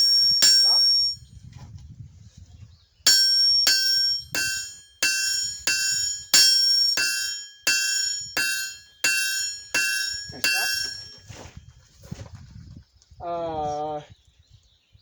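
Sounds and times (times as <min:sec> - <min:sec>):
hammer ringing on anvil: 0:00.0 - 0:01.2, 0:03.1 - 0:11.5.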